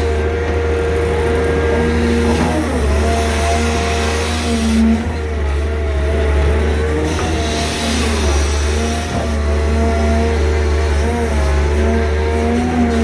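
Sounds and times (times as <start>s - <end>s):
excavator diesel engines rumbling: 0.0s - 13.0s.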